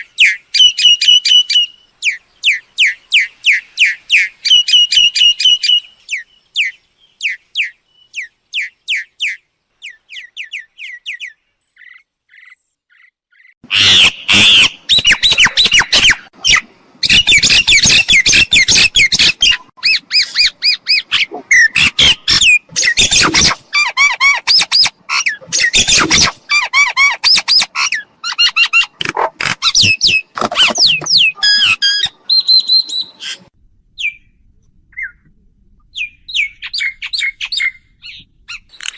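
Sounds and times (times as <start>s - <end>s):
bird whistling and squawking: 13.7s - 29.0s, 29.6s - 33.4s, 35.9s - 38.9s.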